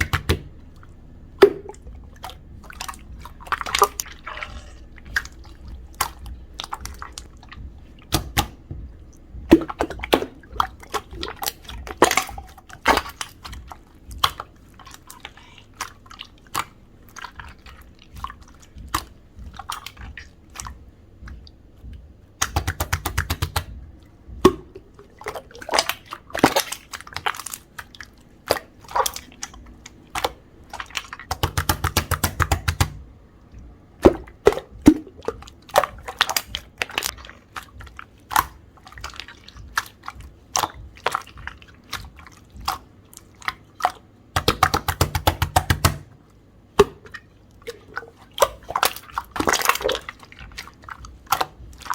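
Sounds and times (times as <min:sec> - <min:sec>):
slime clicking and popping: 0:22.4 - 0:23.7.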